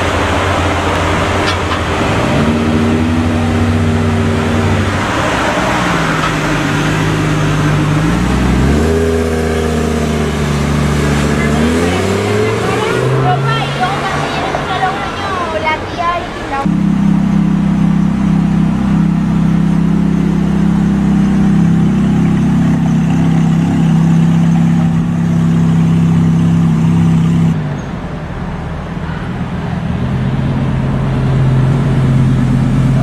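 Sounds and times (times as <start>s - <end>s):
car engine idling: 0.0s - 33.0s
low-pitched car engine running: 16.6s - 27.6s.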